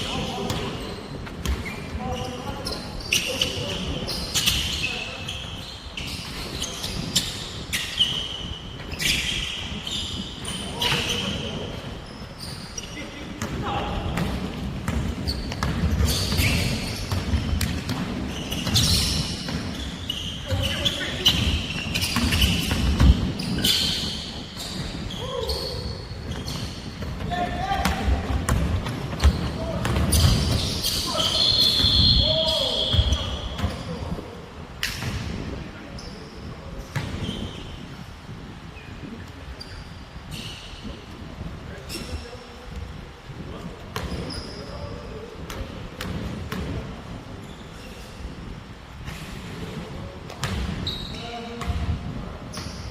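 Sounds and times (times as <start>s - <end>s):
sneakers squeaking on floor: 0.0s - 38.1s, 39.5s - 41.0s, 41.8s - 42.6s, 43.9s - 48.3s, 50.3s - 52.9s
basketball bouncing on court: 13.4s - 25.2s, 26.2s - 31.0s, 32.8s - 33.9s, 43.9s - 44.2s, 50.3s - 50.9s.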